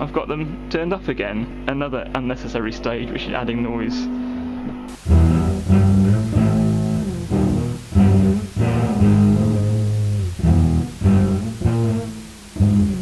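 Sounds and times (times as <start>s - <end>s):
amplifier hiss: 4.9s - 13.0s
electric guitar riff: 4.9s - 13.0s.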